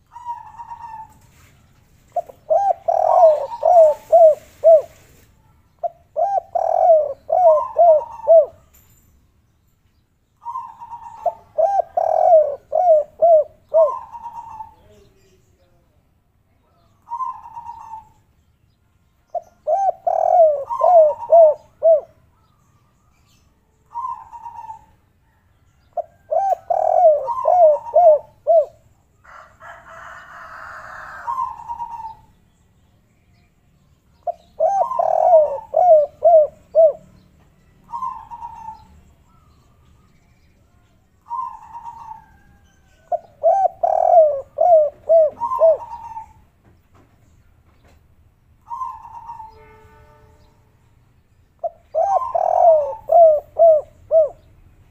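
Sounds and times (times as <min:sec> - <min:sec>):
dove cooing: 0:00.0 - 0:01.5, 0:02.1 - 0:05.2, 0:05.8 - 0:08.6, 0:10.4 - 0:15.0, 0:17.1 - 0:18.2, 0:19.3 - 0:22.2, 0:23.9 - 0:25.4, 0:26.0 - 0:28.8, 0:30.5 - 0:32.3, 0:34.2 - 0:37.2, 0:37.8 - 0:39.0, 0:41.2 - 0:46.4, 0:48.7 - 0:49.6, 0:51.6 - 0:54.5.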